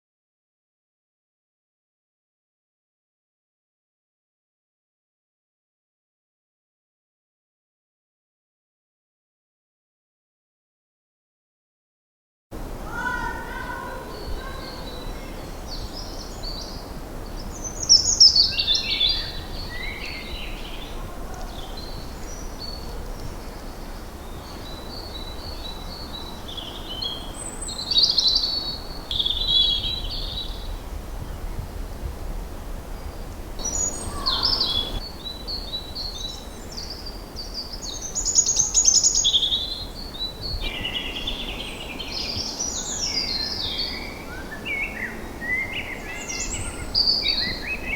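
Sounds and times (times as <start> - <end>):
faint bird chirping: 12.9 - 31.8, 32.9 - 47.9
songbird trills and sweeps: 12.9 - 47.9.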